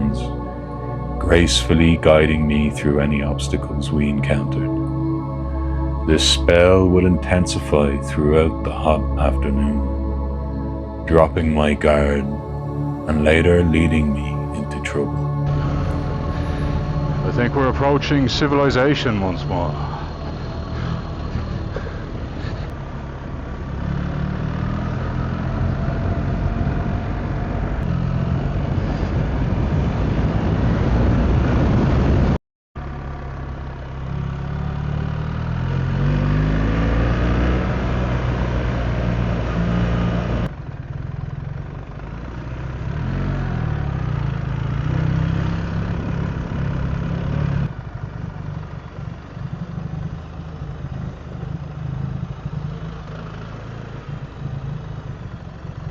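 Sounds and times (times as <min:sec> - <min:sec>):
wind and road noise: 0:15.5 - 0:55.9
motorcycle engine running: 0:37.6 - 0:55.9.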